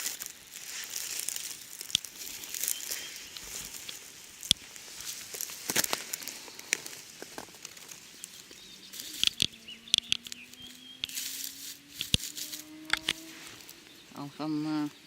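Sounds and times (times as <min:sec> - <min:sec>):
twigs snapping: 0:00.0 - 0:14.0
rustling in dry leaves: 0:00.0 - 0:15.0
faint bird chirps: 0:01.4 - 0:03.9, 0:07.8 - 0:11.2.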